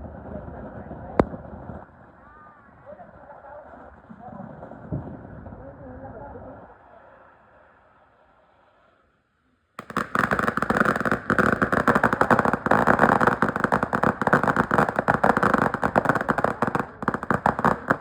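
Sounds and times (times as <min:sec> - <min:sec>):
firecrackers banging: 0:09.8 - 0:18.0.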